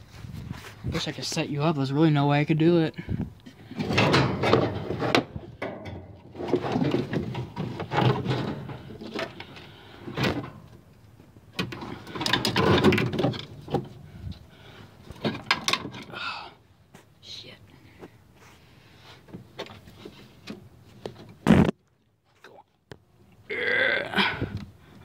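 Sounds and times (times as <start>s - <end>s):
metal scraping and rattling: 3.6s - 10.8s, 11.6s - 14.3s.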